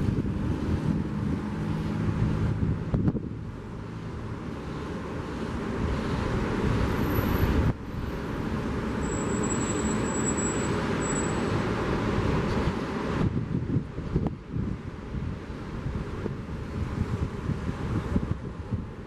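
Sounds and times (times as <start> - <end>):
car passing: 0.0 - 13.4
wind: 0.0 - 19.0.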